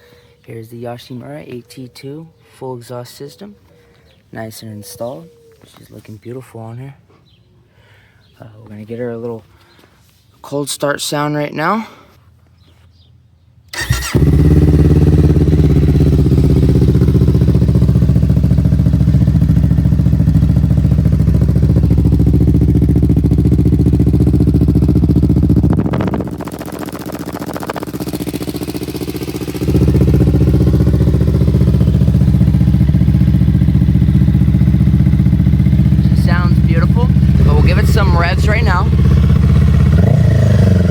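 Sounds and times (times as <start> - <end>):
motorcycle engine starting: 13.7 - 40.9
motorcycle engine idling: 13.8 - 40.9.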